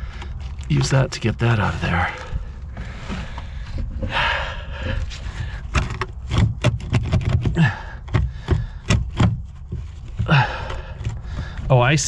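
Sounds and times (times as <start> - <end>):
plastic tool scraping metal: 5.0 - 10.3
sharp clicks and knocks: 5.5 - 11.7.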